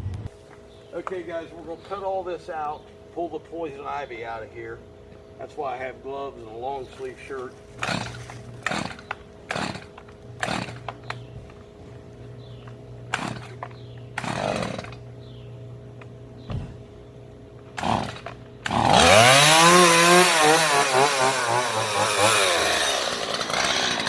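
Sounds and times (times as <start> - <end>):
low steady hum: 0.0 - 20.8
chainsaw revving: 7.8 - 11.3, 13.1 - 15.0, 17.7 - 24.0.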